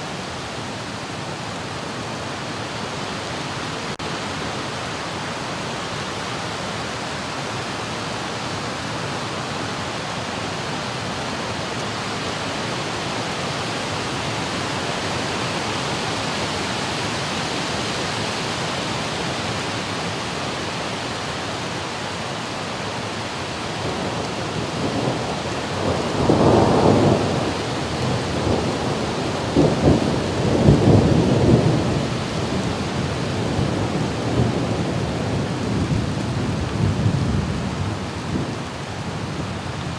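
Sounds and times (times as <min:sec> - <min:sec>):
heavy rain hissing: 0:00.0 - 0:39.9
thunder rumbling: 0:23.7 - 0:39.9.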